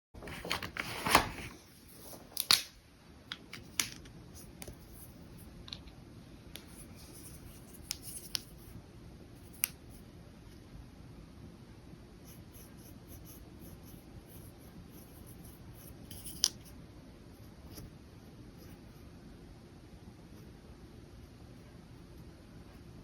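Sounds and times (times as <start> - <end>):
paper rustling: 0.2 - 2.7.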